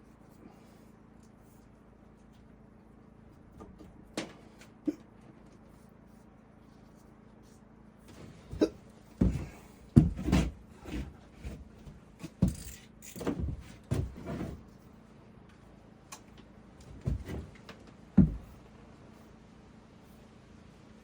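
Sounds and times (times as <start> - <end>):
wooden knocks and thumps: 9.2 - 14.5, 16.9 - 18.6.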